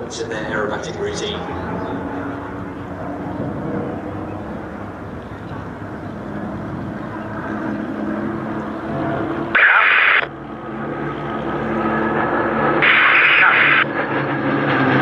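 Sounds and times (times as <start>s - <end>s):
aircraft engines droning: 0.0s - 15.0s
radio static hiss: 9.6s - 10.3s, 12.8s - 13.9s.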